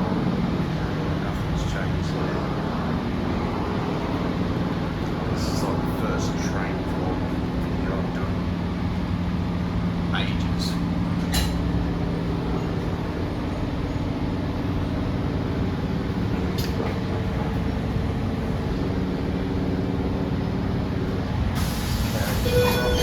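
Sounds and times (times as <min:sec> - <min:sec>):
electric train interior rumble: 0:00.0 - 0:23.0
hiss: 0:21.6 - 0:22.8.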